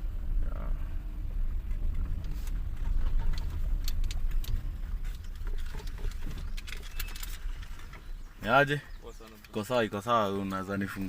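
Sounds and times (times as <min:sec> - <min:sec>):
vehicle rumbling slowly: 0:00.0 - 0:11.0
light clicks and ticks: 0:01.6 - 0:08.2, 0:09.0 - 0:09.8.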